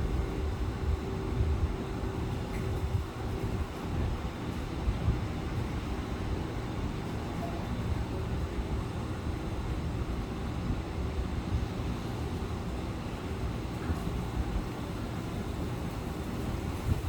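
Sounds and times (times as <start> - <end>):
wind buffeting microphone: 0.0 - 6.9, 15.5 - 17.0.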